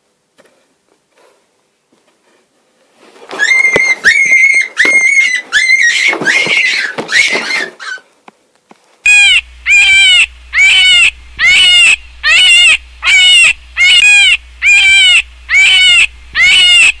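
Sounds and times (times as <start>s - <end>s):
domestic animal calling: 9.1s - 17.0s.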